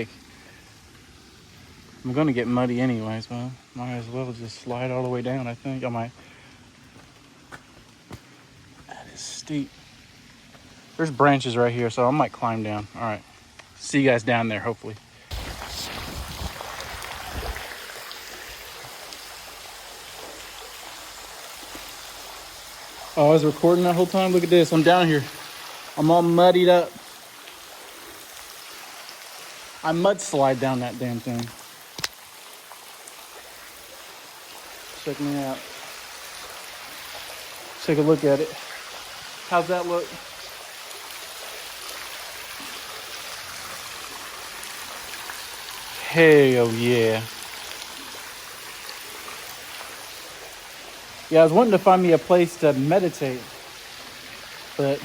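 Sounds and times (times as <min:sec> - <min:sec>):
running water hiss: 0:00.0 - 0:55.0
bumps and rubbing on microphone: 0:15.3 - 0:17.7.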